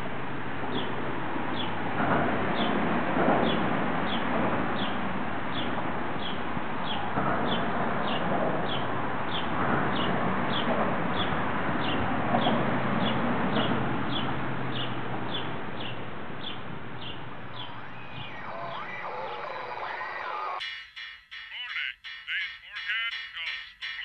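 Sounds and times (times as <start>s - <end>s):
small bird chirping: 14.8s - 24.0s
steady rushing noise: 16.1s - 21.4s.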